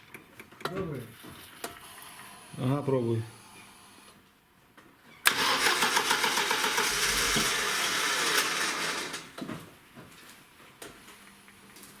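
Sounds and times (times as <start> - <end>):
starter motor cranking car engine: 5.3 - 9.4.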